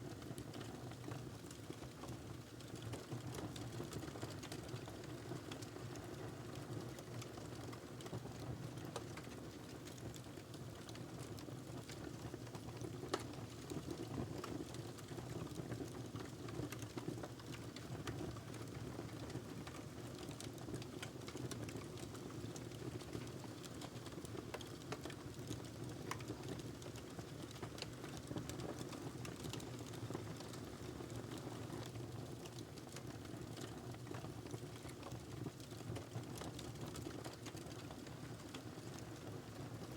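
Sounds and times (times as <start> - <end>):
wood fire crackling: 19.7 - 37.8.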